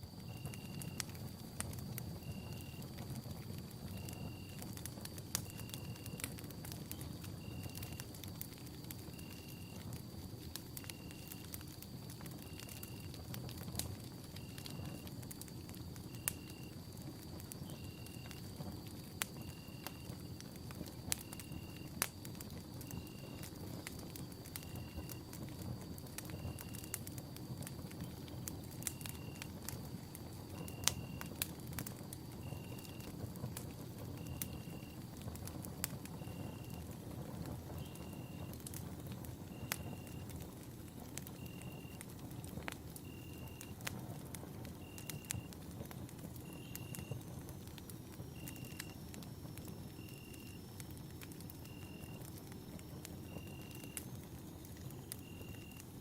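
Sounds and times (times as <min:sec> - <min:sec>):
campfire crackling and popping: 0:00.0 - 0:56.0
faint steady high tone: 0:46.4 - 0:55.8.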